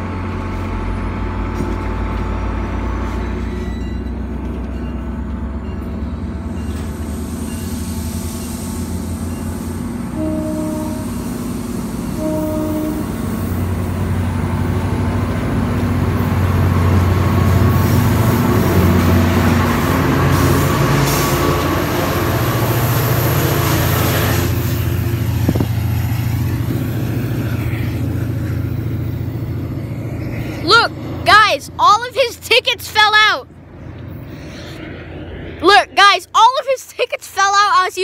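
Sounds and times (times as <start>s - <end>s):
diesel locomotive engine drone: 0.0s - 38.0s
passenger coaches rolling past: 0.0s - 38.0s
brief tone: 3.5s - 6.9s.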